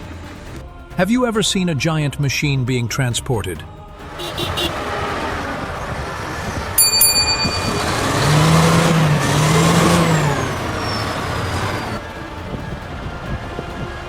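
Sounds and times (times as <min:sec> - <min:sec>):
heavy truck running: 0:03.7 - 0:14.0
high-pitched squeal: 0:04.7 - 0:12.0
low steady tone: 0:06.8 - 0:09.0.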